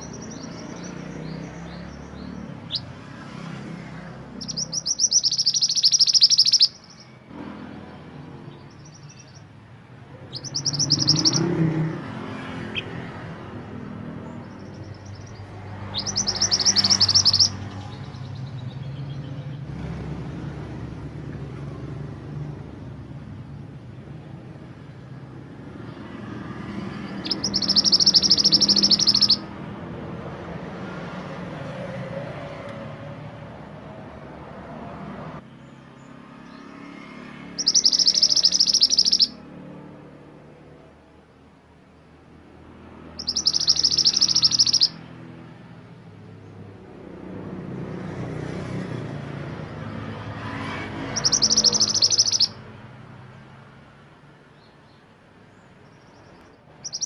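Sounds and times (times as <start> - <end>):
songbird singing high phrases: 0.0 - 3.2, 4.3 - 7.2, 8.3 - 9.6, 10.2 - 12.0, 12.6 - 19.9, 26.8 - 29.6, 37.5 - 39.5, 43.0 - 45.2, 51.0 - 52.7, 54.6 - 57.0.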